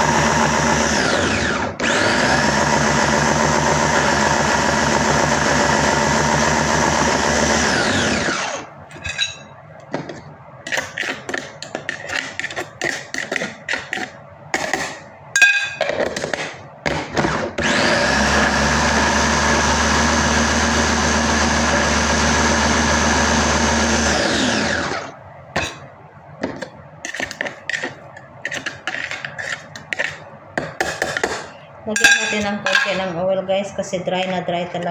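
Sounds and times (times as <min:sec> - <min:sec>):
electric blender grinding: 0:00.0 - 0:08.7, 0:17.2 - 0:25.1.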